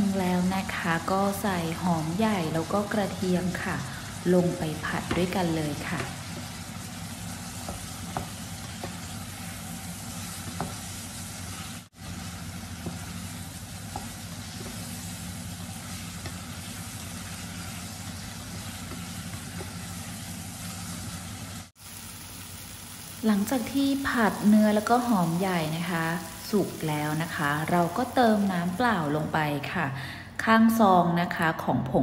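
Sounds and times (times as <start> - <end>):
meat sizzling in hot oil: 0.0 - 29.4.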